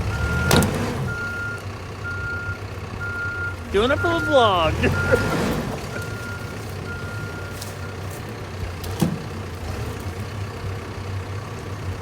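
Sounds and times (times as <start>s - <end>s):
low engine rumble: 0.0s - 12.0s
reverse alarm beeping: 0.1s - 8.0s.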